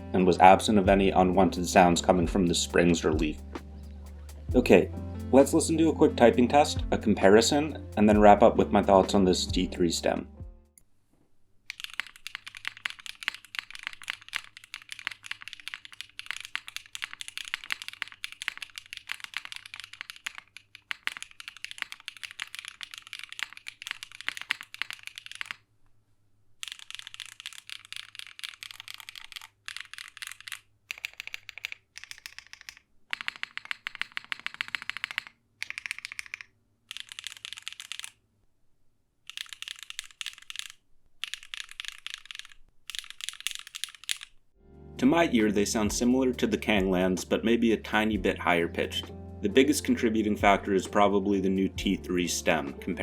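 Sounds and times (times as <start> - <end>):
mechanical keyboard typing: 11.7 - 25.6, 26.6 - 38.2, 39.2 - 44.4.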